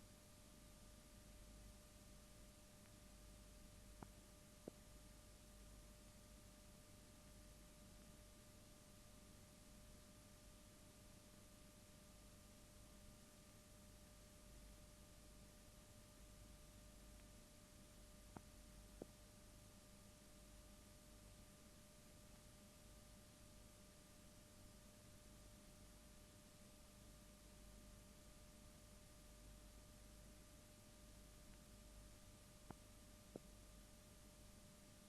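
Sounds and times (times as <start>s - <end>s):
faint steady hiss: 0.0s - 35.0s
low electrical hum: 0.0s - 35.0s.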